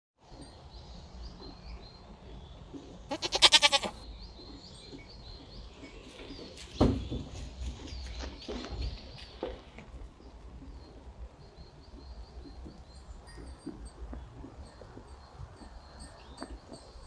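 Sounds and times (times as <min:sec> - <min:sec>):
farm animal bleating: 0:03.0 - 0:04.1
thump: 0:06.8 - 0:07.4.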